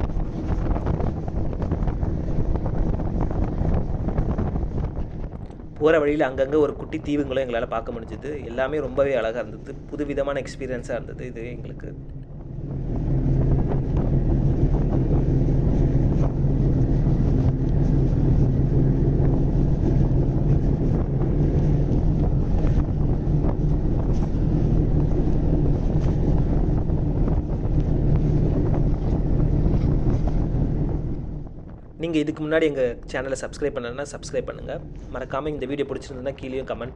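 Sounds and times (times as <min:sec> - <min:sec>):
wind buffeting microphone: 0:00.0 - 0:36.9
snowmobile engine humming: 0:09.5 - 0:32.0.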